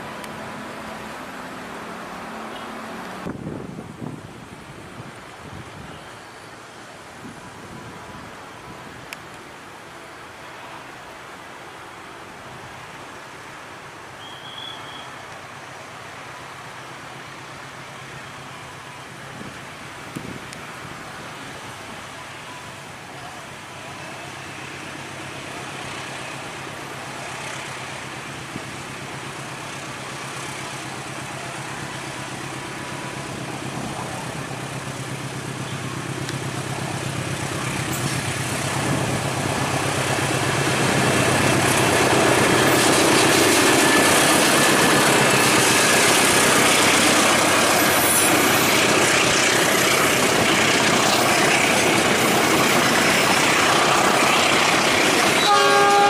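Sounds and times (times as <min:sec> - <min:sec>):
locomotive engine humming: 0:00.0 - 0:04.0, 0:14.0 - 0:56.0
train wheels rushing on rails: 0:12.7 - 0:56.0.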